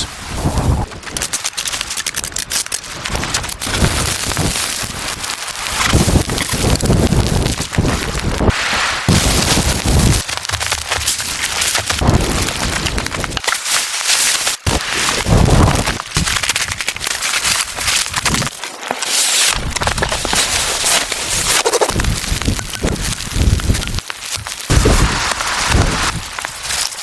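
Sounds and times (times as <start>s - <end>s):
wind gusting against microphone: 0.0s - 1.2s, 3.0s - 10.3s, 21.4s - 26.4s.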